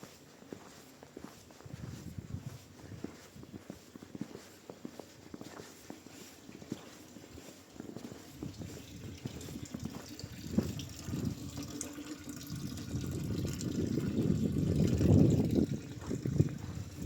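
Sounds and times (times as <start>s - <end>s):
water running and splashing: 6.6s - 17.0s.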